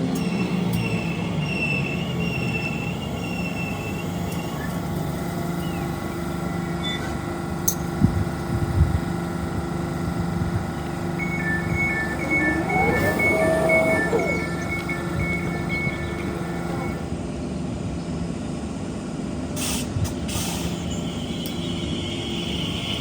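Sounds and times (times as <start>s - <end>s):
train equipment humming: 0.0s - 17.3s
two-tone beeping: 11.0s - 17.0s.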